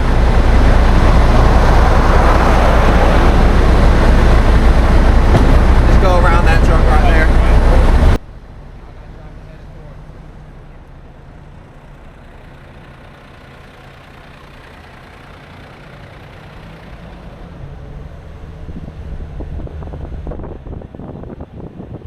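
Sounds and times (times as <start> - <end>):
wind buffeting microphone: 0.0 - 8.2, 18.5 - 22.0
car engine and tyre hum: 0.0 - 22.0.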